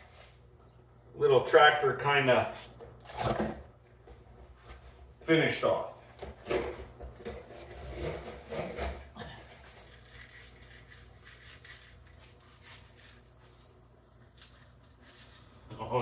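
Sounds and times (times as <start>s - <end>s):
objects scraping and rubbing: 7.3s - 16.0s.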